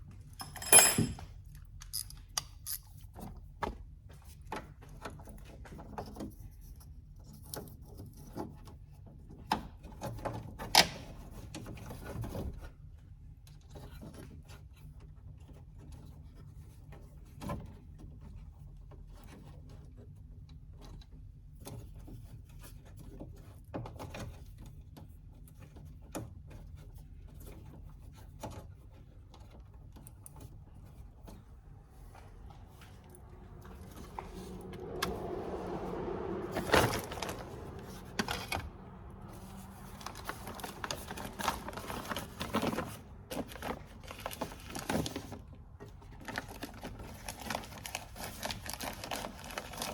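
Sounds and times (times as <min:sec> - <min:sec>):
tools clicking and rattling: 0:00.3 - 0:02.9
low steady hum: 0:29.3 - 0:45.2.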